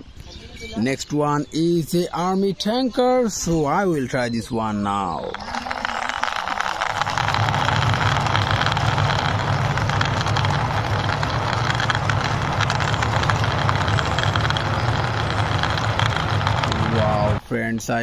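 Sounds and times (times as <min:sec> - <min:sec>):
plastic wheels rolling over stone: 0:04.8 - 0:17.4.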